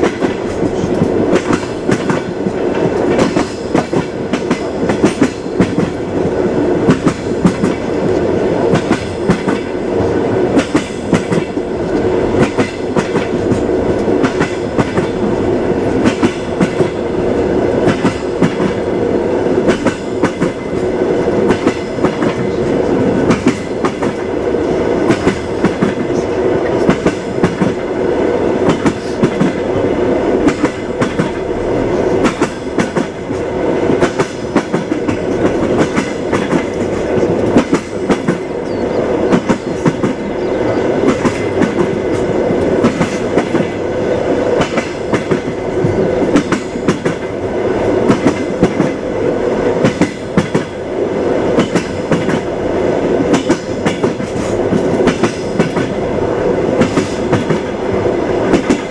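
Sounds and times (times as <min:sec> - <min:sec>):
wheels clacking over rail joints: 0:00.0 - 0:17.0, 0:19.6 - 0:24.4, 0:32.2 - 0:47.4, 0:51.5 - 0:56.1, 0:56.7 - 0:58.9
train rumbling: 0:00.0 - 0:58.9.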